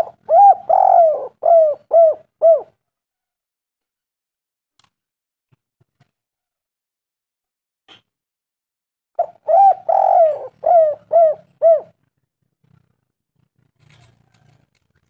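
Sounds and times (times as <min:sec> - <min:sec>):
dove cooing: 0:00.0 - 0:02.8, 0:09.2 - 0:12.0.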